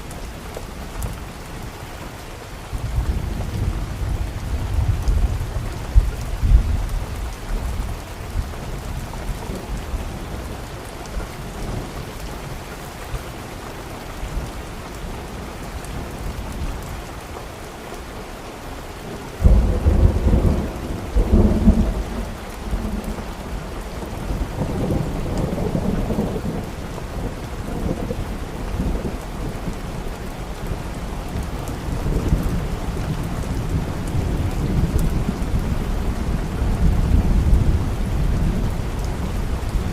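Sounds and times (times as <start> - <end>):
steady rain: 0.0 - 39.9
rolling thunder: 19.4 - 29.8.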